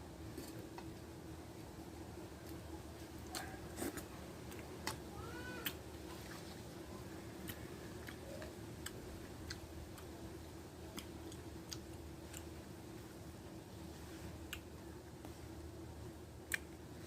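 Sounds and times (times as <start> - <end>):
steady low hum: 0.0 - 17.0
person chewing food: 7.4 - 10.2, 10.9 - 12.6.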